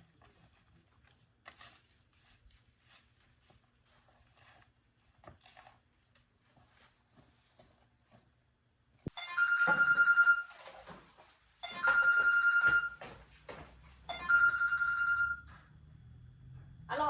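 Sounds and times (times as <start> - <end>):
telephone ringing: 9.1 - 11.0, 11.6 - 13.2, 14.0 - 15.7.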